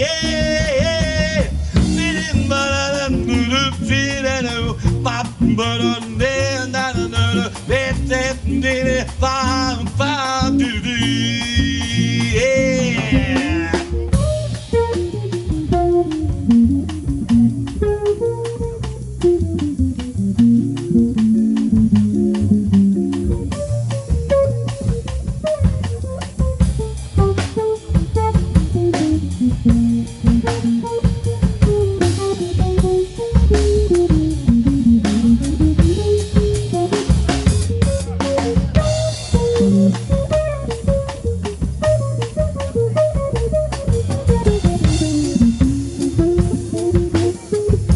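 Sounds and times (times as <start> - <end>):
drum kit: 0.0 - 47.9
electric guitar melody: 0.0 - 47.9
walking double bass: 0.0 - 47.9.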